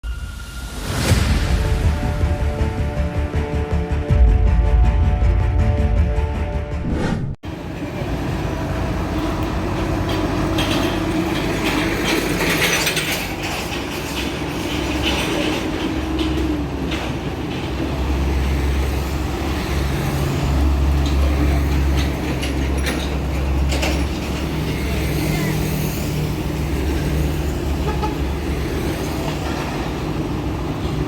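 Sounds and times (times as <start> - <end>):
truck engine rumble: 7.4 - 31.0
metallic clanks and rattles: 9.8 - 18.0, 20.9 - 24.7.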